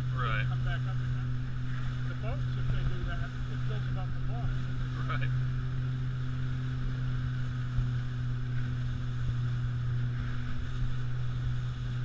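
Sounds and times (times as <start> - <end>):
boat motor humming: 0.0 - 12.0
rumble of wind and water: 0.0 - 12.0.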